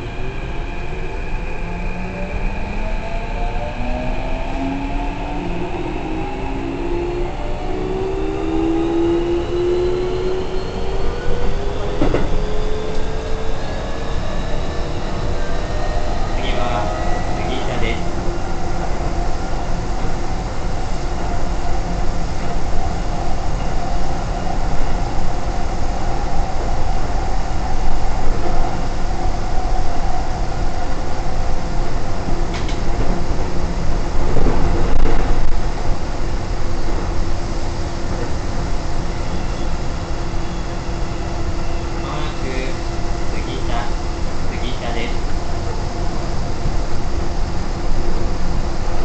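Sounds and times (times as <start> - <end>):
train wheels rumbling on rails: 3.6 - 49.0.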